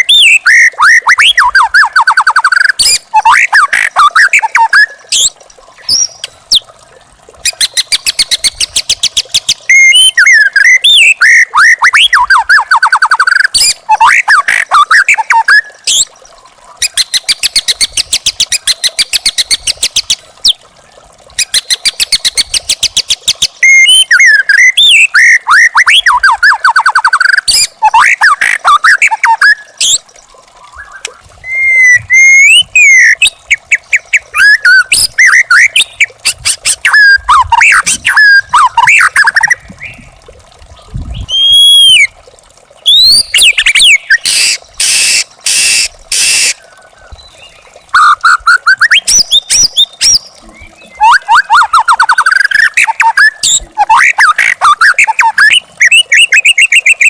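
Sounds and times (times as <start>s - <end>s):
bird singing whistled phrases: 0.0s - 6.6s, 9.4s - 16.1s, 23.6s - 30.0s, 30.7s - 36.1s, 36.8s - 40.1s, 41.2s - 42.1s, 42.8s - 46.6s, 47.2s - 57.0s.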